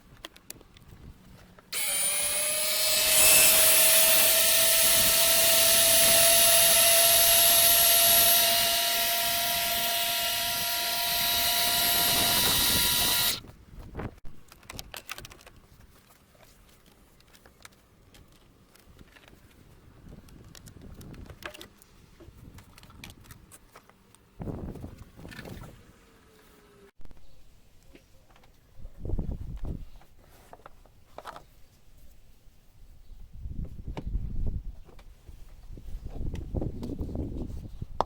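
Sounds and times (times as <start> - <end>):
faint clicks and handling noise: 0.0 - 1.7, 14.3 - 25.6, 27.8 - 32.1
small electric motor whining: 1.8 - 13.4.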